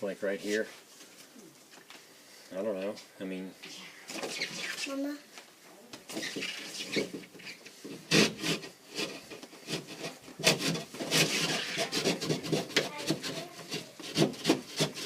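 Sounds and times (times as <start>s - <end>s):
drywall being cut and scraped: 6.1s - 15.0s.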